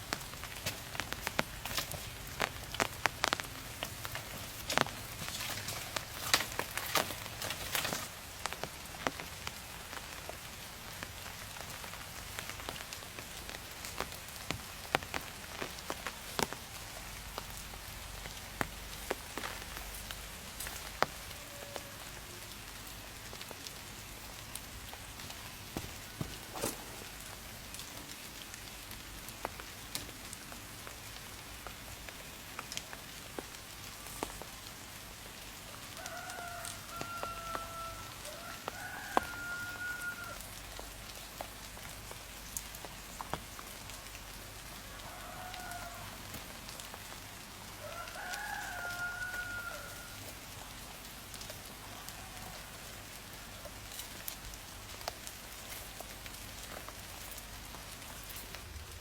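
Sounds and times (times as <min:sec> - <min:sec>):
steady hiss: 0:00.0 - 0:47.9
rooster crowing: 0:21.3 - 0:22.2, 0:35.8 - 0:40.5, 0:44.8 - 0:46.3, 0:47.8 - 0:50.3.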